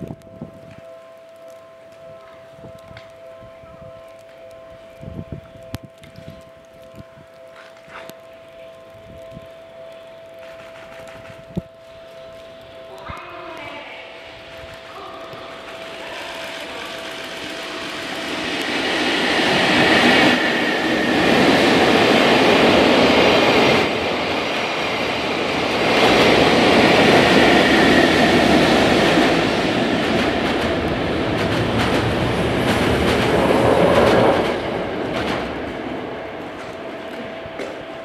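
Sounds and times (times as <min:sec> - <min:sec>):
train wheels rumbling and clattering: 0:10.3 - 0:12.0, 0:14.2 - 0:38.0.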